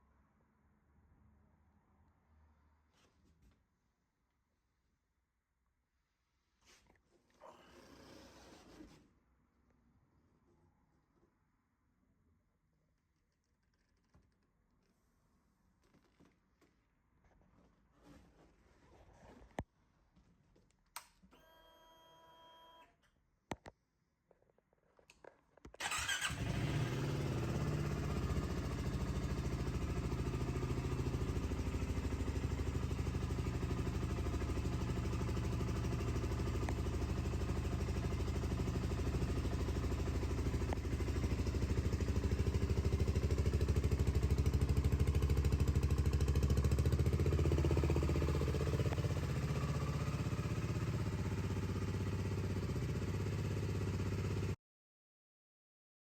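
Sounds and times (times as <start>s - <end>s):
motorcycle engine starting and idling: 25.8s - 54.6s.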